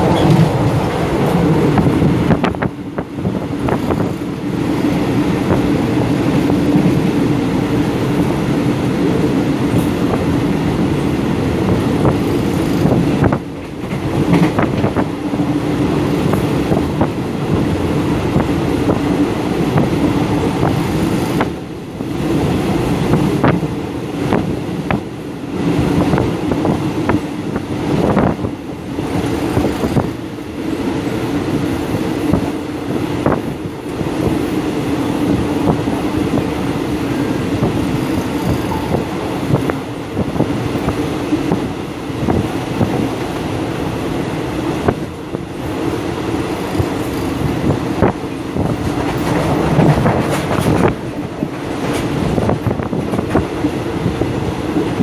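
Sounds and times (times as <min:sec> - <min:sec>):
train wheels rumbling on rail: 0:00.0 - 0:55.0
sharp clacks and rattles: 0:48.8 - 0:52.2.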